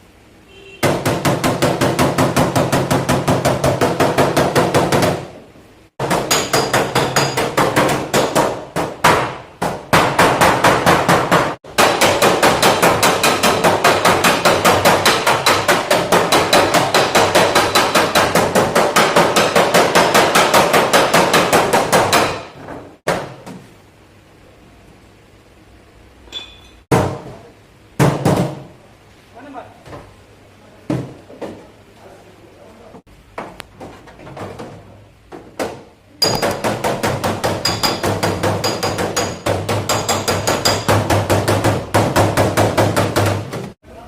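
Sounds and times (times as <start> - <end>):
hammer beating sheet metal: 0.8 - 5.4, 6.0 - 23.4, 35.6 - 43.8.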